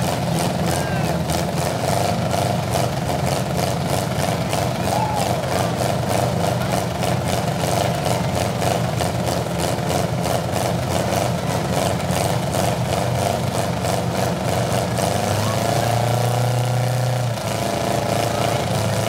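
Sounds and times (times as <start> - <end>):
car engines running: 0.0 - 19.0.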